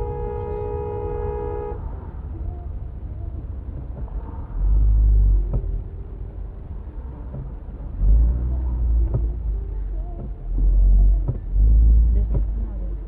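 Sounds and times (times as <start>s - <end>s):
car horn blast: 0.0s - 1.8s
car and road rumble: 0.0s - 13.0s.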